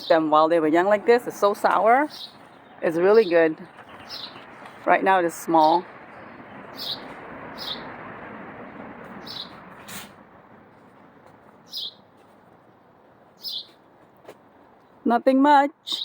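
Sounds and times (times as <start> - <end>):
outdoor background hiss: 0.0 - 16.0
small songbird chirping: 1.3 - 8.0, 9.1 - 9.6, 11.6 - 12.1, 13.3 - 13.8.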